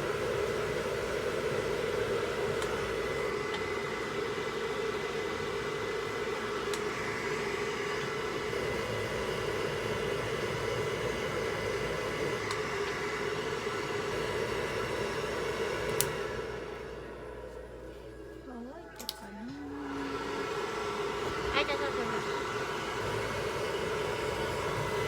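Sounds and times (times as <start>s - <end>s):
hair dryer blowing: 0.0s - 25.0s
hair dryer switch click: 2.6s - 2.8s, 6.7s - 6.9s, 12.4s - 13.0s, 15.8s - 16.2s, 19.0s - 19.3s.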